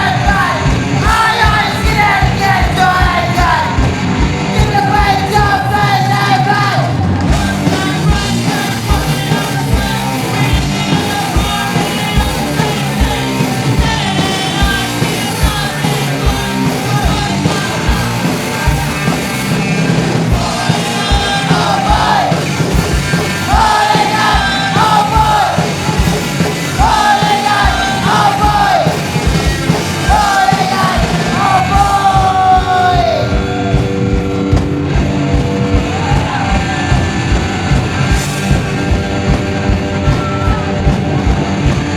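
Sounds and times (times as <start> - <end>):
punk rock band playing: 0.0 - 41.9.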